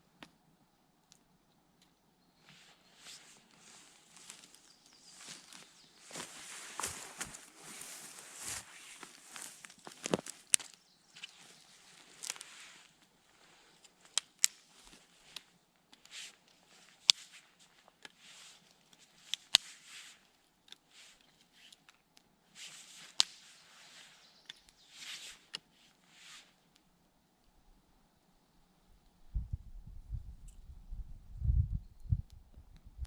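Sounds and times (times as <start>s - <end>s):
rustling: 2.5s - 22.0s
campfire crackling: 3.2s - 18.0s
sharp snapping pops: 14.1s - 14.6s.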